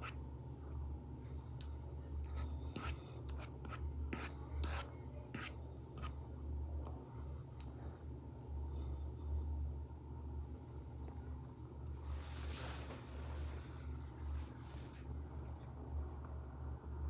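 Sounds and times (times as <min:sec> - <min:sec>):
steady low hum: 0:00.0 - 0:17.0
stylus scratching on screen: 0:02.3 - 0:06.1.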